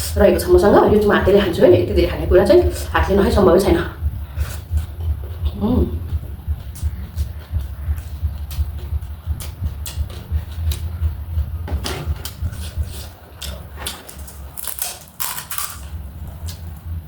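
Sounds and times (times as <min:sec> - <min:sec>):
steady low hum: 0:00.0 - 0:17.0
puffed rice snack crunching: 0:13.4 - 0:15.9.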